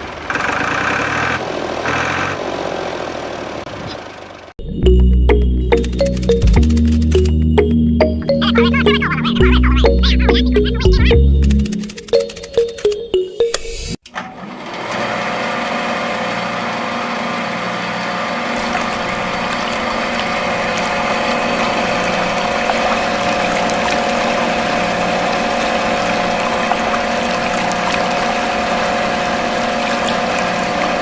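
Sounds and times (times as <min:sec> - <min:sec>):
small water pump motor humming: 0:14.6 - 0:31.0.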